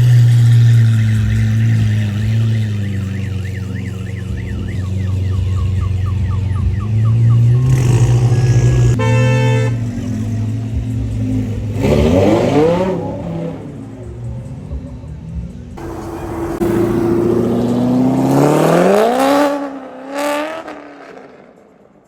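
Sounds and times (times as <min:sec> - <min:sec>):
car engines idling: 0:00.0 - 0:20.0
engine revving: 0:00.0 - 0:21.2
car horn honking: 0:00.8 - 0:14.3, 0:15.8 - 0:19.5.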